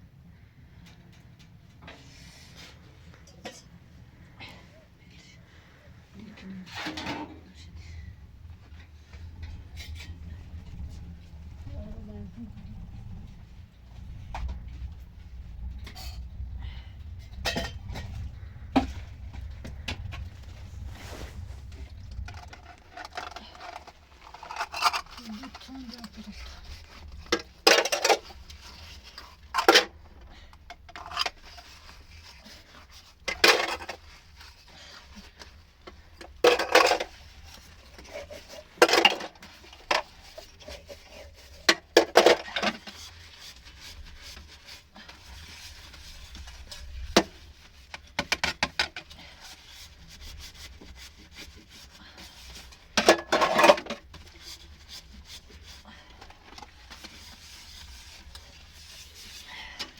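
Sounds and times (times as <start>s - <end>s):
wood scraping and rubbing: 12.6s - 25.2s.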